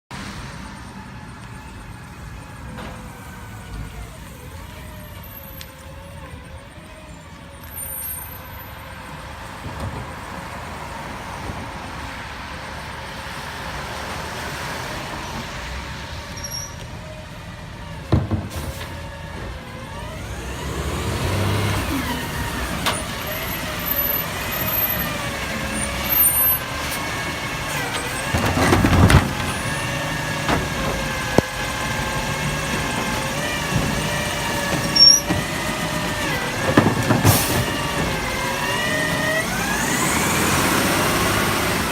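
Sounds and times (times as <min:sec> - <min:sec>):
garbage truck engine running: 0:17.0 - 0:41.9.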